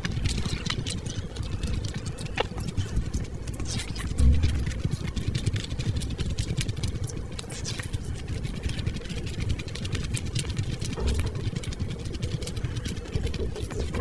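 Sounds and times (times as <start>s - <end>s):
chewing with wet mouth clicks: 0.0s - 14.0s
low steady rumble: 3.7s - 6.2s, 11.0s - 12.0s.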